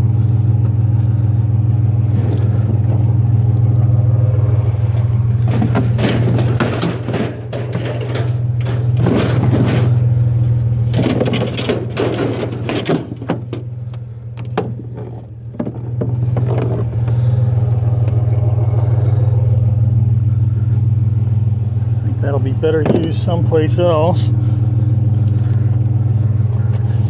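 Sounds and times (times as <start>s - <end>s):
vehicle engine idling: 0.0s - 27.0s
metal gear clattering and scraping: 4.8s - 19.2s.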